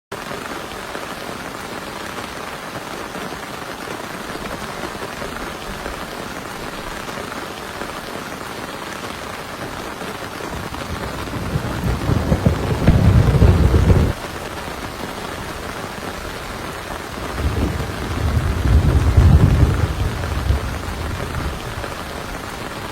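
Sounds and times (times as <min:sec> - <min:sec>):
heavy rain: 0:00.1 - 0:22.9
low thunder rumble: 0:10.5 - 0:14.2, 0:17.1 - 0:22.4.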